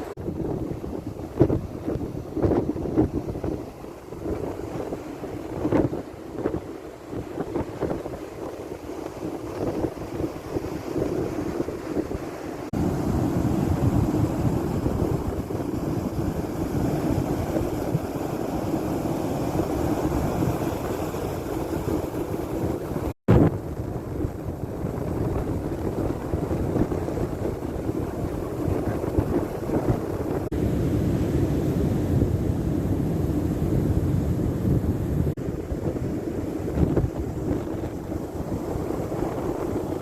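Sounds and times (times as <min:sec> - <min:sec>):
surf on beach: 0:00.0 - 0:40.0
wind buffeting microphone: 0:00.0 - 0:40.0.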